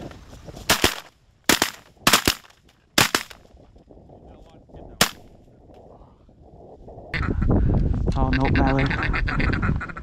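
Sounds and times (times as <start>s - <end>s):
shotgun blasts: 0.7s - 3.4s, 5.0s - 5.3s.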